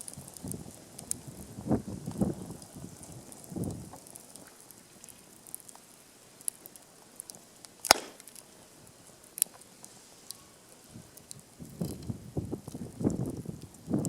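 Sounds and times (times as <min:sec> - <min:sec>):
wood fire crackling: 0:00.0 - 0:14.0
loud sharp pop: 0:07.8 - 0:08.2.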